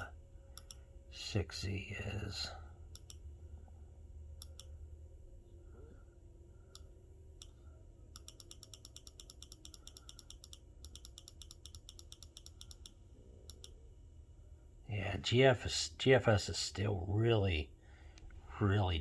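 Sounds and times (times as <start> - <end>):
computer mouse clicking: 0.0 - 0.8, 2.9 - 3.2, 4.4 - 4.7, 6.7 - 13.8
faint low hum: 0.0 - 19.0.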